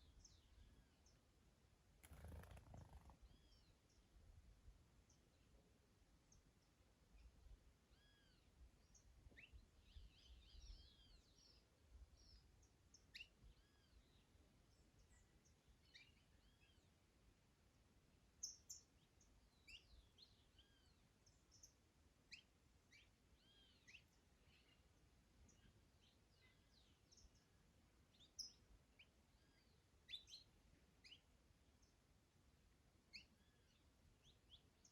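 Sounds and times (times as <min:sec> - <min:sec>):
small birds chirping: 0:02.0 - 0:03.7.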